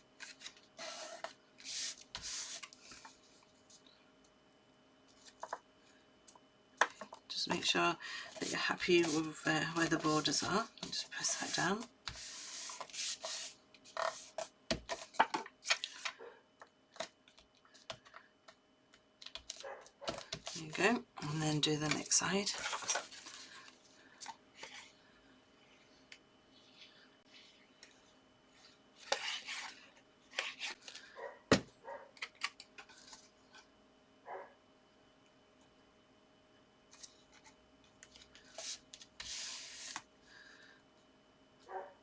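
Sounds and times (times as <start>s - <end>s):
paper rubbing on paper: 8.3s - 10.6s, 11.2s - 14.3s
paper rustling: 21.8s - 23.7s.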